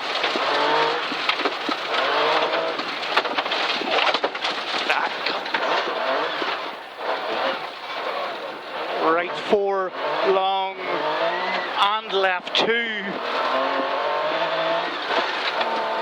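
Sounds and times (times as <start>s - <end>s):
gravel clattering against underbody: 0.0s - 9.2s, 11.0s - 16.0s
rally car engine revving through gears: 0.0s - 16.0s.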